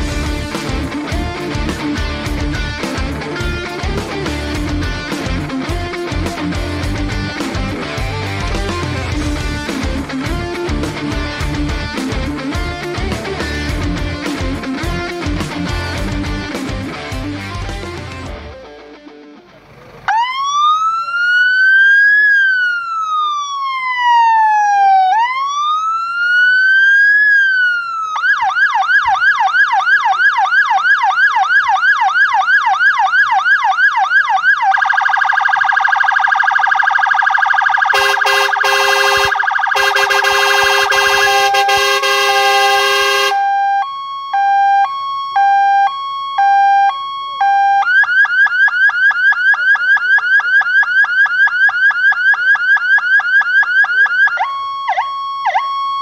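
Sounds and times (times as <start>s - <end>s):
fire engine electronic siren: 20.1s - 56.0s.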